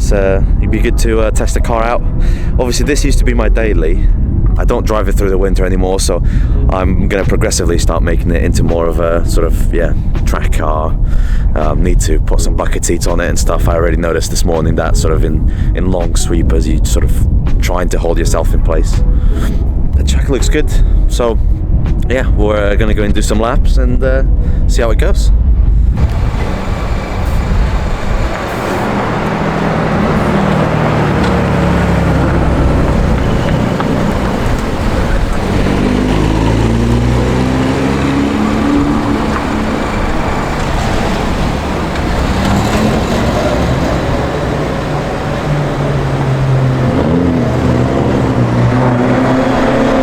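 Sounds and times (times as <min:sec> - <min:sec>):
road and wind noise: 0:00.0 - 0:50.0
rotary car engine revving: 0:25.8 - 0:50.0.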